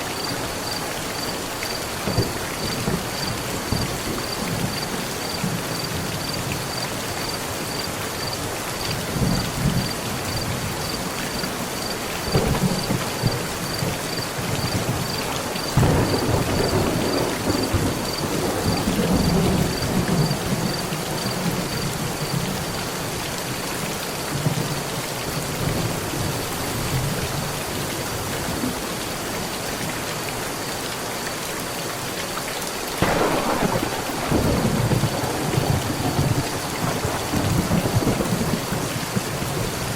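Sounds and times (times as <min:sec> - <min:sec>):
heavy rain on a metal roof: 0:00.0 - 0:39.9
thunder rumbling: 0:02.0 - 0:06.0, 0:12.2 - 0:22.3, 0:33.0 - 0:39.9.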